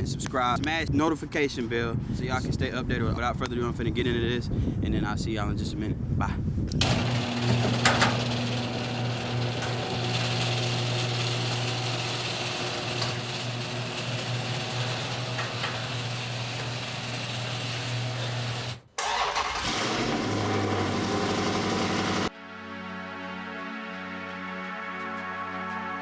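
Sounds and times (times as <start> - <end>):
car engine running: 19.6 - 22.3.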